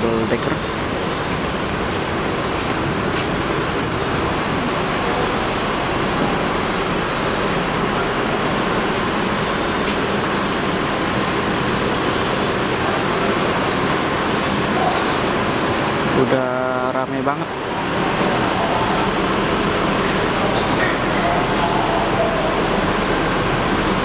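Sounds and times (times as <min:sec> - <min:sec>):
road rumble: 0:00.0 - 0:16.2
air-conditioning hiss: 0:00.0 - 0:24.0
engine drone: 0:00.0 - 0:24.0.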